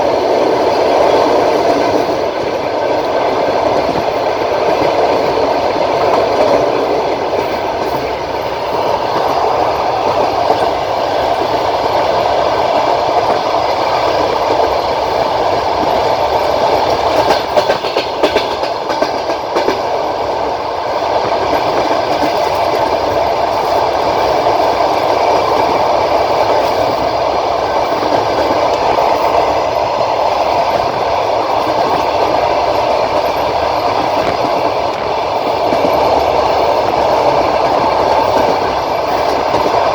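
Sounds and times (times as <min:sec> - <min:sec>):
train wheel clicks: 0:00.0 - 0:39.9
train wheels rumbling on rails: 0:00.0 - 0:39.9.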